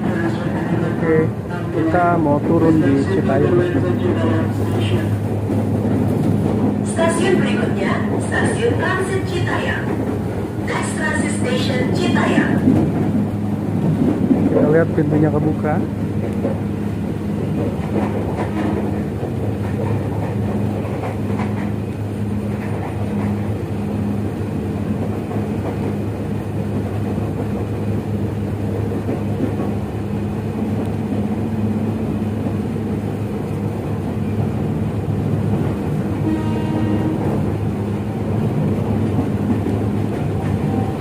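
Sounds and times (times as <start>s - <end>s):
train carriage hum and rumble: 0.0s - 41.0s.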